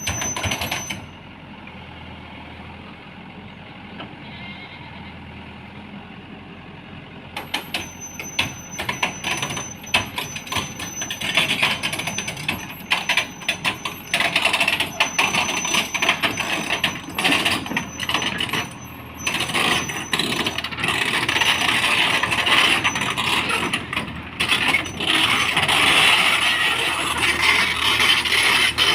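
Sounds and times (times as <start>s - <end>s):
crawler tracks clanking on metal: 0.0s - 1.1s, 7.4s - 28.9s
machinery running: 7.4s - 28.9s.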